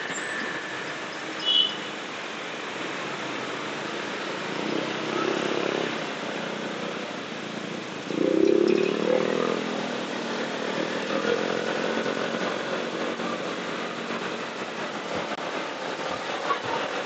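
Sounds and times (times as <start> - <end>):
motorcycle road and wind noise: 0.0 - 17.0.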